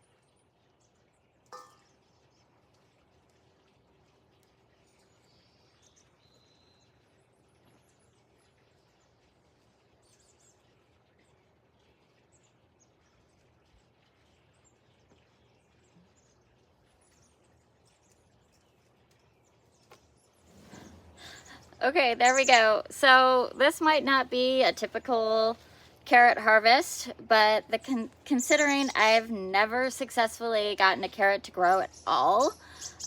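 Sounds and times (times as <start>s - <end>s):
faint bird chirps: 4.7s - 22.9s, 31.8s - 33.0s.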